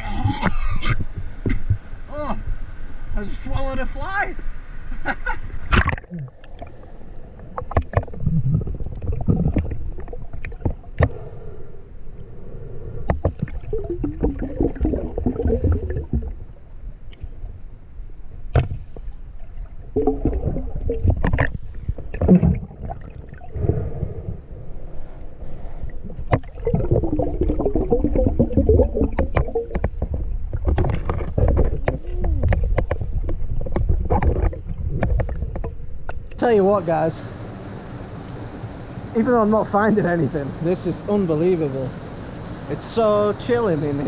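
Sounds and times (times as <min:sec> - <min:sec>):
constant low rumble: 0:00.0 - 0:44.0
water sloshing and gurgling: 0:05.4 - 0:36.4
bubbling: 0:05.7 - 0:11.3, 0:12.9 - 0:16.8, 0:19.3 - 0:36.4.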